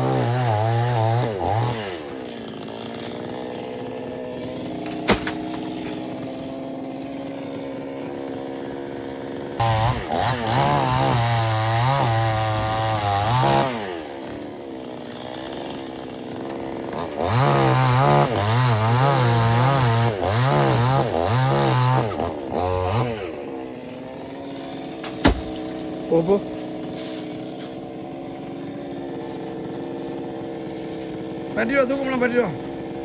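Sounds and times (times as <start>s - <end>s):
chainsaw revving: 0.0s - 33.0s
sharp knock: 4.9s - 5.6s, 25.0s - 25.6s.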